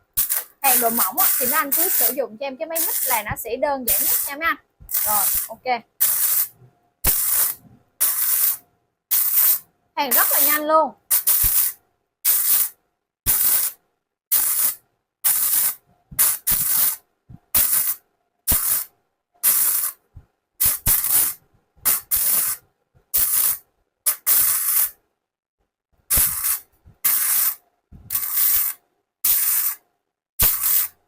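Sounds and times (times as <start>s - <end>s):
welding arc crackling and hissing: 0.1s - 20.0s, 20.6s - 22.6s, 23.2s - 25.0s, 26.1s - 29.8s, 30.4s - 31.0s.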